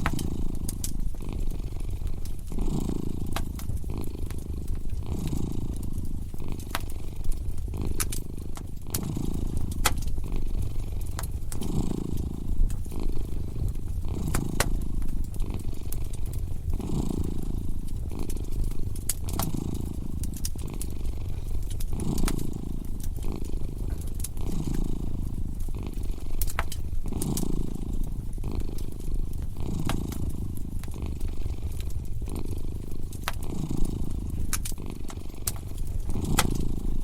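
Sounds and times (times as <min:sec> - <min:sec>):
cat purring: 0:00.0 - 0:37.0
wood fire crackling and popping: 0:00.0 - 0:37.0.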